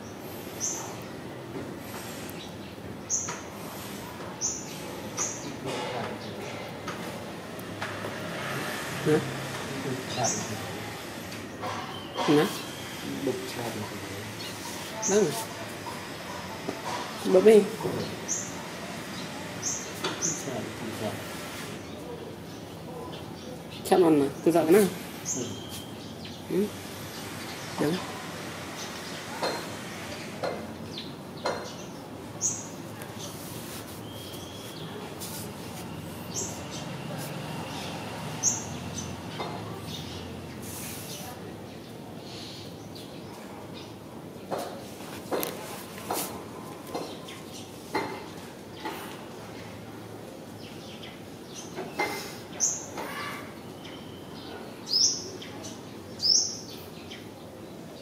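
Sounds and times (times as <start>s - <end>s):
steady background noise: 0.0s - 58.0s
high bird chirps: 25.2s - 26.5s, 34.0s - 35.0s
small bird chirping: 25.2s - 28.0s, 34.0s - 37.0s.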